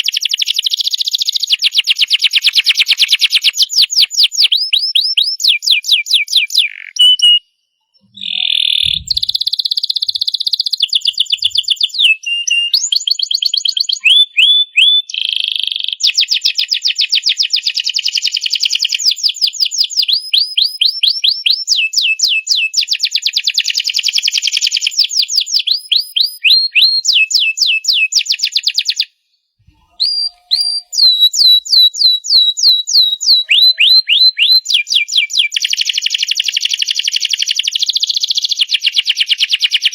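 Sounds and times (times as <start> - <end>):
canary singing trills: 0.0 - 15.2, 29.7 - 35.9.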